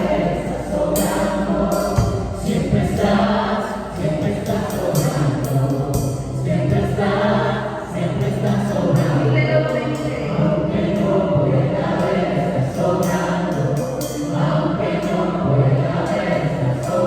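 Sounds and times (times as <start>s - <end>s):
drum kit playing: 0.0s - 7.5s
bass: 0.0s - 17.0s
people singing: 0.0s - 17.0s.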